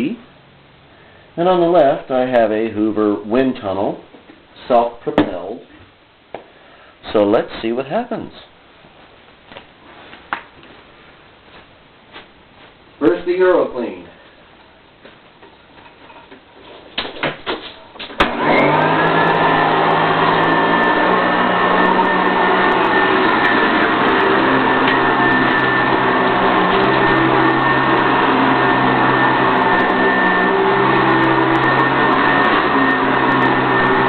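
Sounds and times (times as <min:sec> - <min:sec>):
vacuum cleaner motor whining: 0:18.1 - 0:34.0.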